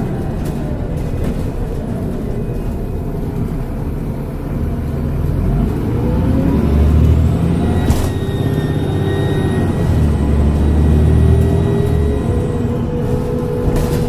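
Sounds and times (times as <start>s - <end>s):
bus diesel engine accelerating: 0.0s - 14.0s
faint turbo whistle: 7.6s - 10.2s.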